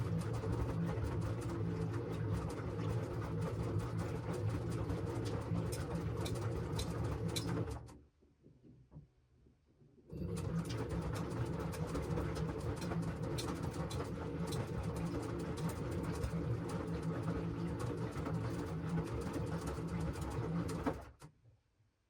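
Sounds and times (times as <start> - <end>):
washing machine motor hum: 10.1 - 20.8.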